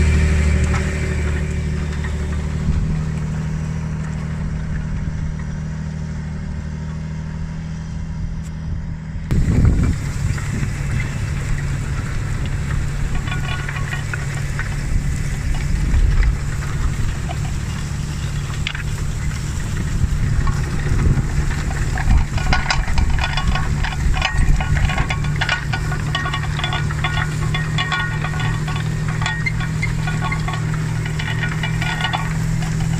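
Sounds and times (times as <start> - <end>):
tractor diesel engine running: 0.0 - 32.9
rapid rattling and clatter: 9.3 - 32.9.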